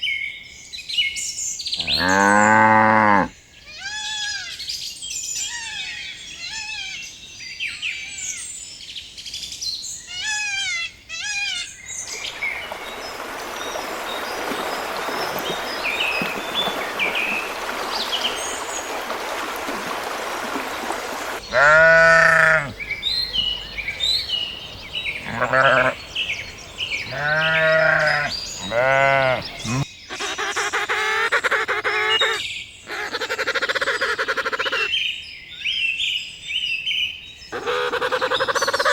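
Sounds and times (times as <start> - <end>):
farm animal bleating: 1.8 - 4.5, 21.5 - 22.8, 25.2 - 26.0, 27.1 - 29.8
outdoor hiss: 12.0 - 21.7
high repeated bird-like calls: 37.5 - 38.9.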